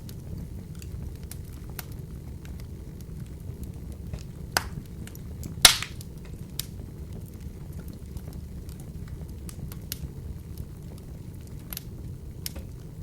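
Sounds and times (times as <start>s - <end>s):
wood fire crackling: 0.0s - 13.0s
sharp pop of fire: 4.0s - 6.7s.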